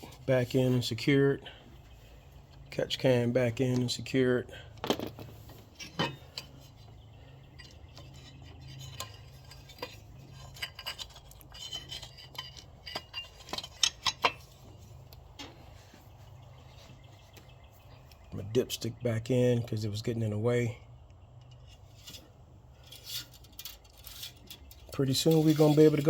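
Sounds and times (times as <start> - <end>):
low steady hum: 0.0 - 26.0
metallic clicks of tools and parts: 4.7 - 6.8, 7.6 - 14.5, 21.0 - 26.0.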